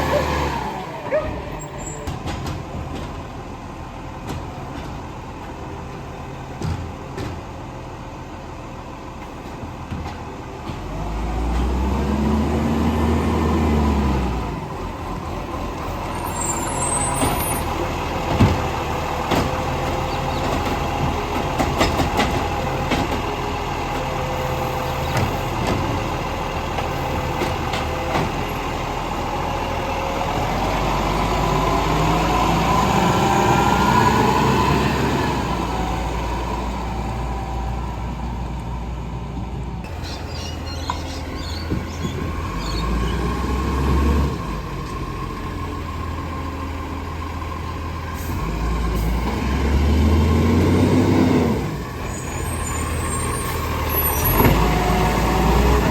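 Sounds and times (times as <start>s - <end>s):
garbage truck engine revving: 0.0s - 3.1s, 10.6s - 55.9s
knocks and clanks: 18.2s - 23.3s.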